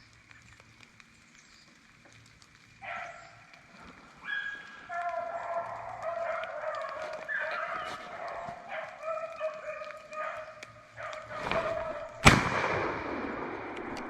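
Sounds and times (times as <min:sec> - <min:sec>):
dogs baying: 0:02.8 - 0:03.5, 0:04.1 - 0:12.2.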